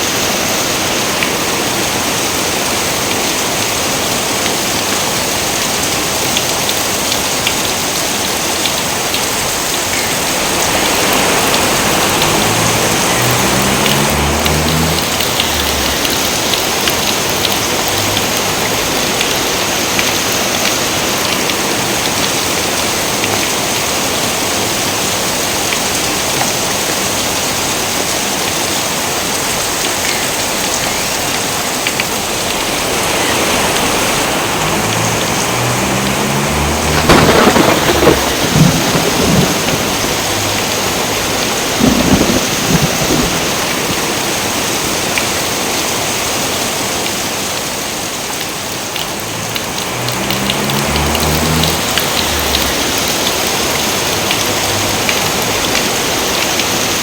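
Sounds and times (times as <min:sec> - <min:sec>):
heavy rain: 0:00.0 - 0:57.0
thunder: 0:34.8 - 0:44.0.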